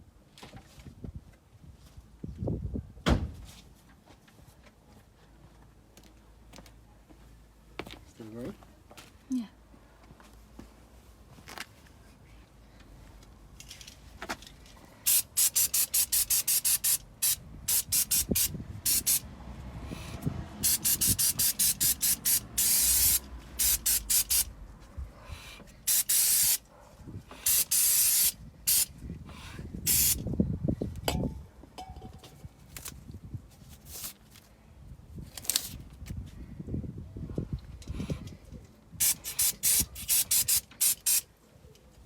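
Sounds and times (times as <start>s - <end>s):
aerosol spray can hissing: 15.1s - 19.2s, 20.0s - 24.5s, 25.9s - 26.6s, 27.4s - 28.9s, 29.9s - 30.2s, 39.0s - 41.2s.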